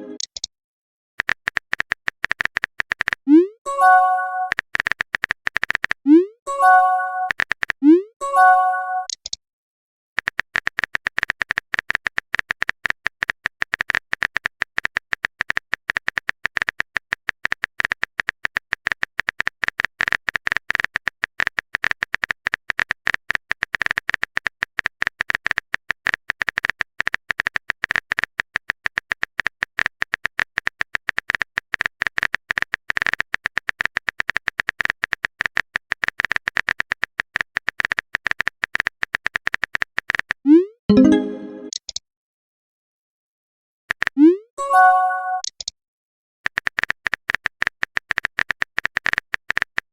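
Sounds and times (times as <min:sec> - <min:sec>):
rapid typing clicks: 0:01.2 - 0:03.2, 0:04.5 - 0:06.0, 0:07.3 - 0:07.8, 0:10.2 - 0:40.4, 0:43.9 - 0:44.2, 0:46.4 - 0:49.9.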